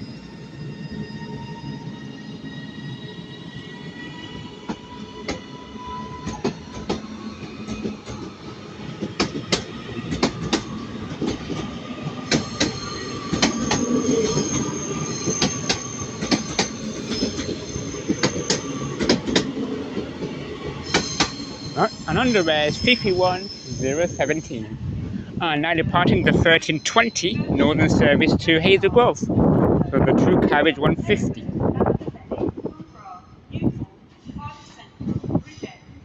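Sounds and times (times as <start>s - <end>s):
train rumble: 1.2s - 36.0s
train wheels clicking over rail joints: 6.2s - 21.6s
wheel flange squeal: 12.2s - 19.5s, 20.3s - 24.6s.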